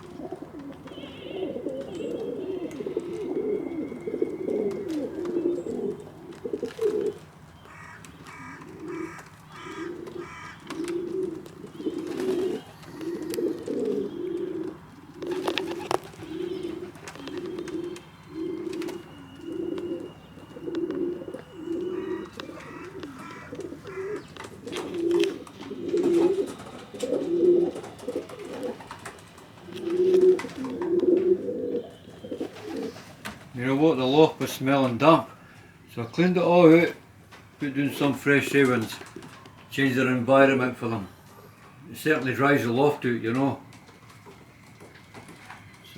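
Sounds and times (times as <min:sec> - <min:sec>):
pigeons cooing: 0:00.0 - 0:45.9
high chirping notes: 0:15.2 - 0:26.6.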